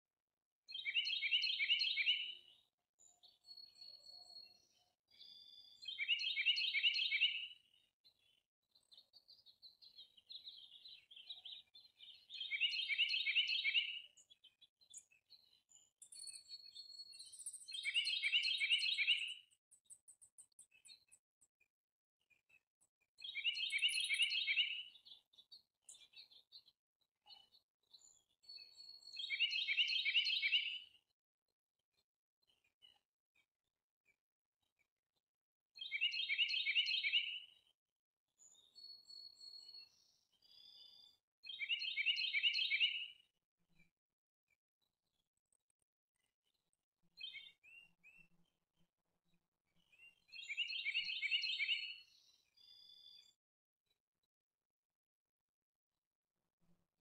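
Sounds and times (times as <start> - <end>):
songbird singing: 0.7 - 21.3, 23.2 - 30.9, 35.8 - 37.5, 38.5 - 43.3, 47.2 - 48.3, 49.8 - 53.4
faint bird chirps: 0.7 - 21.7, 22.3 - 31.1, 38.4 - 43.3, 44.8 - 48.7, 49.3 - 54.0.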